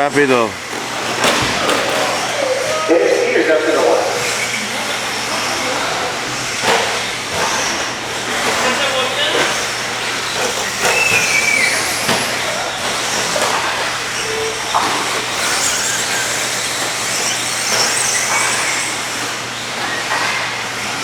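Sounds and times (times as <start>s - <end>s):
rc truck motors whining: 0.0s - 21.0s
tyre and track noise: 0.0s - 21.0s.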